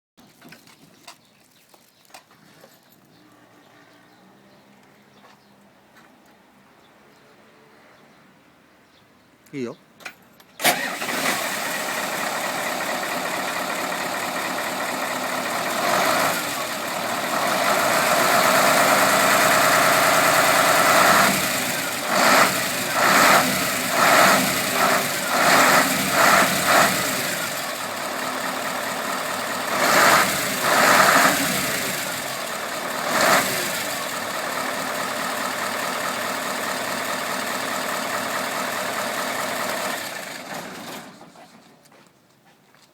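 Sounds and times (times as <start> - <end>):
diesel truck engine idling and revving: 10.6 - 41.3.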